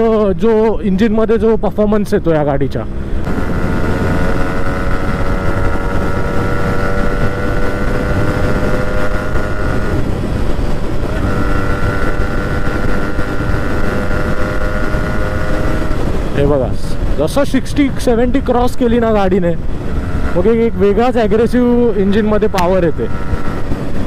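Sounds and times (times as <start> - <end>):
two-stroke motorcycle engine: 2.9 - 17.2
wind on microphone: 2.9 - 22.3, 22.9 - 24.0.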